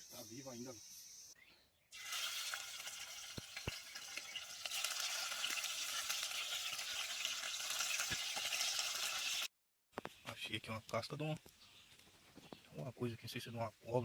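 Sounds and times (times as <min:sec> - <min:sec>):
fish frying in hot oil: 0:01.9 - 0:09.5.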